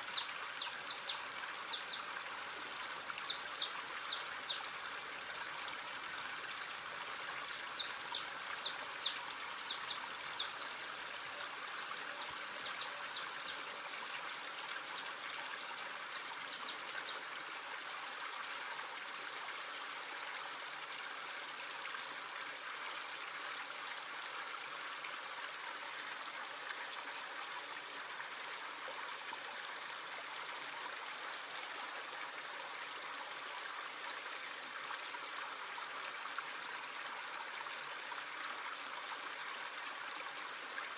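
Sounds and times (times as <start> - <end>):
stream running: 0.0 - 40.9
high bird calls: 0.1 - 5.9, 6.6 - 11.0.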